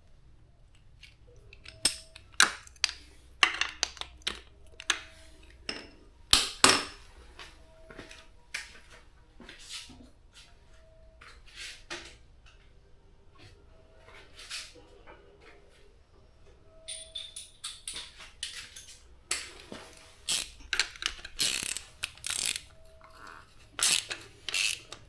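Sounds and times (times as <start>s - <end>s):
metal tools clinking: 1.2s - 7.1s, 16.8s - 25.0s.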